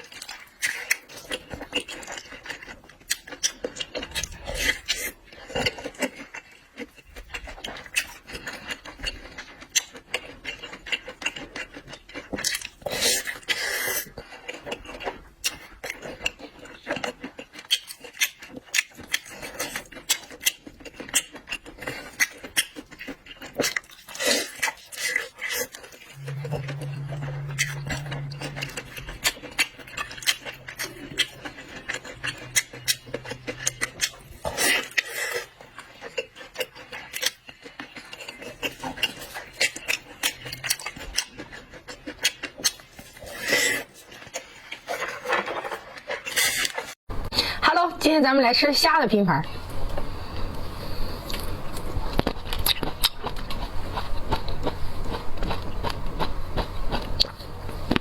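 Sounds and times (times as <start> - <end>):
chewing seafood: 0.0 - 47.6, 49.5 - 58.0
low hum: 26.1 - 32.1.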